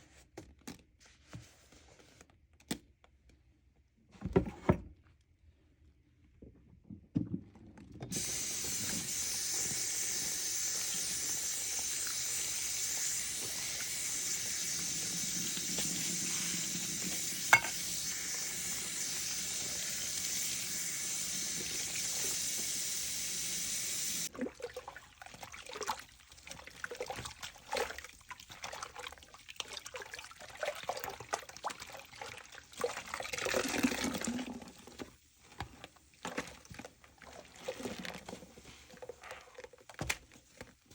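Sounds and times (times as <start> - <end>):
tap water running: 8.1 - 35.0
sponge squelching: 35.4 - 39.8.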